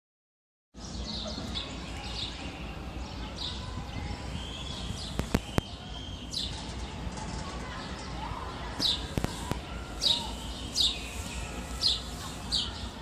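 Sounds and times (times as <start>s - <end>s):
birds chirping: 0.8s - 13.0s.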